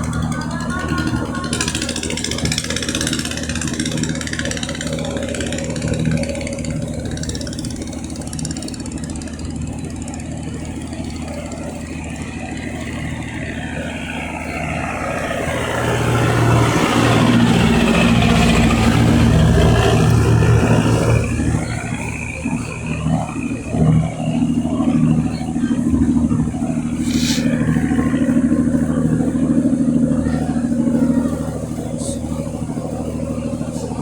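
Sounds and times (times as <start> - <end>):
boat engine running: 0.0 - 34.0.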